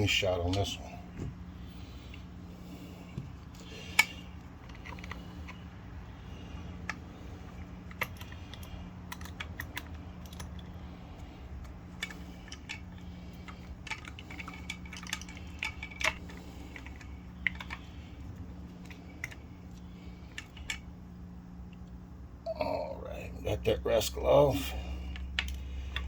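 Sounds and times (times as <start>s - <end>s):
steady low hum: 0.0s - 26.0s
small parts clicking and tapping: 3.1s - 21.0s, 25.0s - 26.0s.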